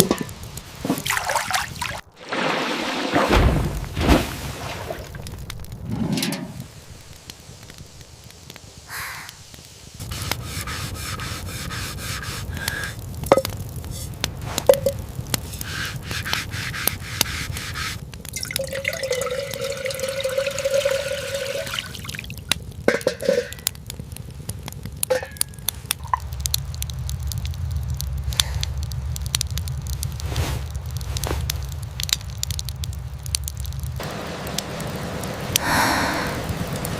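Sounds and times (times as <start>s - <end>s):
campfire crackling: 0.0s - 36.9s
low rumble of rain: 0.0s - 36.9s
rain dripping: 0.0s - 36.9s.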